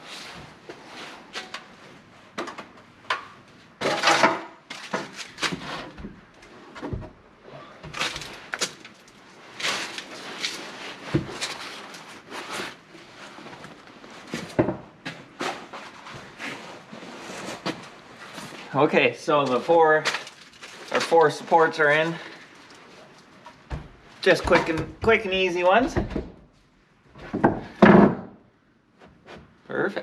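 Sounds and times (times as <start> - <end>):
wooden knocks and clatters: 27.2 - 28.4.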